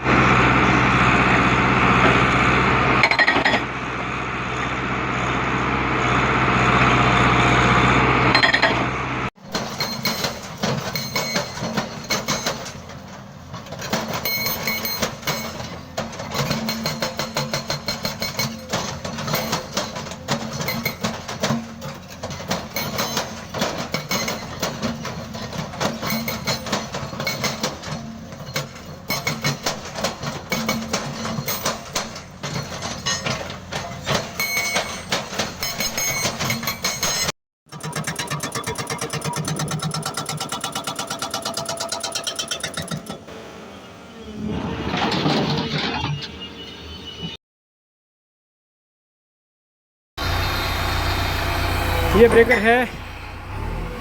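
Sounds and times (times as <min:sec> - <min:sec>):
heavy machine running: 0:00.0 - 0:46.6, 0:50.2 - 0:54.0
hydraulic breaker hammering concrete: 0:13.7 - 0:43.3.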